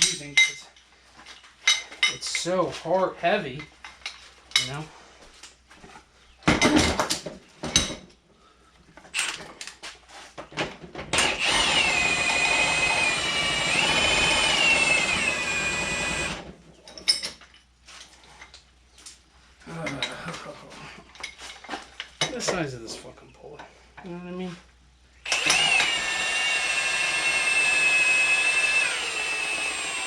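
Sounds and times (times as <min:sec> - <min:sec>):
electric power tool motor: 0:11.2 - 0:16.5, 0:25.2 - 0:30.0.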